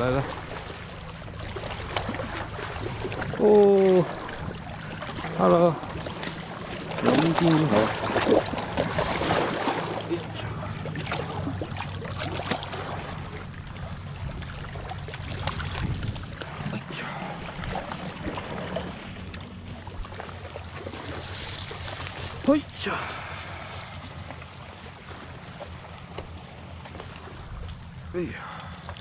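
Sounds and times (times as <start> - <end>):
small waves lapping on rocks: 0.0 - 27.9
low drone: 16.4 - 21.0.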